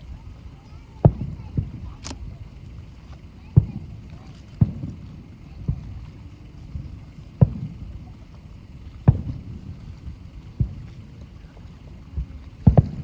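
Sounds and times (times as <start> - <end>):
fireworks bursting with deep booms: 0.7 - 11.5, 12.2 - 13.0.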